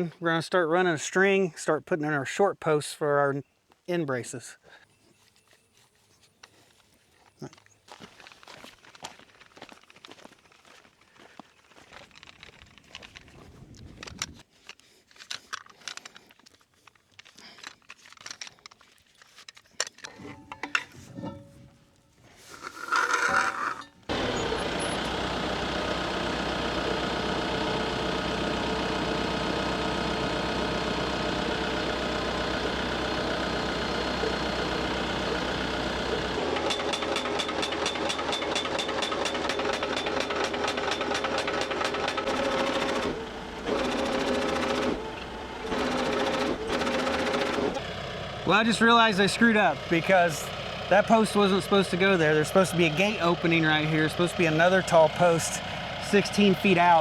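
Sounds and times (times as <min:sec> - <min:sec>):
tractor engine running: 0:19.8 - 0:57.0
post driver hammering fence post: 0:36.3 - 0:45.0, 0:45.7 - 0:47.8.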